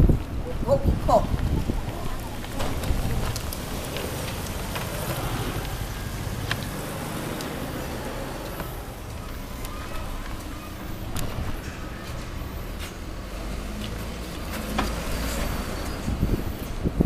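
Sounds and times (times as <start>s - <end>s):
low rumble and hiss of bicycle ride: 0.0s - 17.0s
scattered clicks and ticks: 2.8s - 7.8s.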